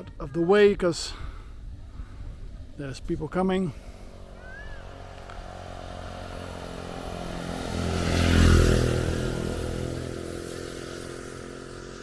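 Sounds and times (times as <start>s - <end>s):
motorbike passing by: 3.6s - 12.0s.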